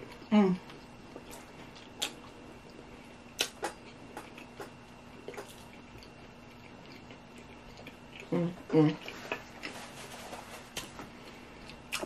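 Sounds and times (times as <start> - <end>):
faint steady hum: 0.0 - 12.0
chewing with wet mouth clicks: 0.7 - 2.8, 3.4 - 8.4.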